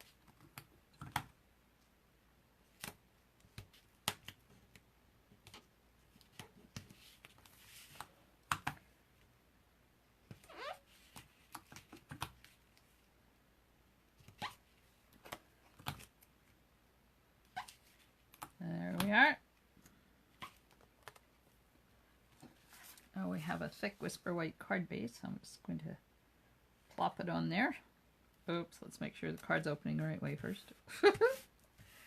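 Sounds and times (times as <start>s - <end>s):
hands working paper clicks: 2.7s - 8.9s, 10.3s - 12.9s.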